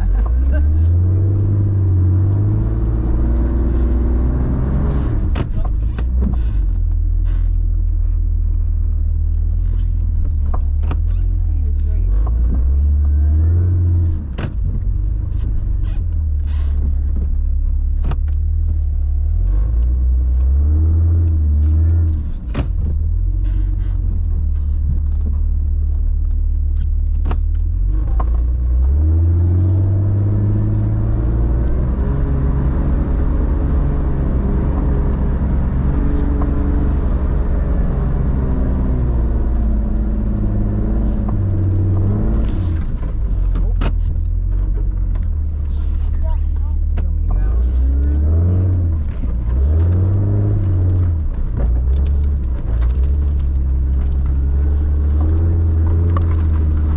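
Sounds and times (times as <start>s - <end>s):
vehicle engine revving: 0.0s - 56.9s
sharp knocks and clunks: 21.6s - 25.5s, 41.3s - 45.4s.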